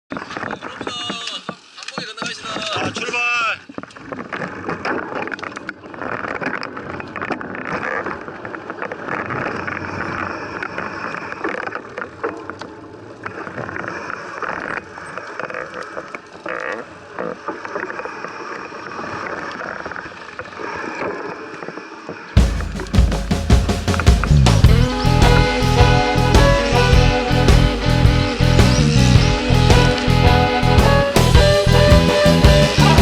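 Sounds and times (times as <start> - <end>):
bike noise: 21.8 - 33.0.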